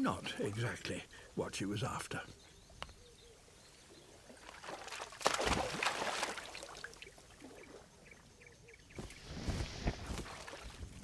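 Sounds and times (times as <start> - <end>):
water splashing: 4.2 - 7.9, 9.0 - 11.0.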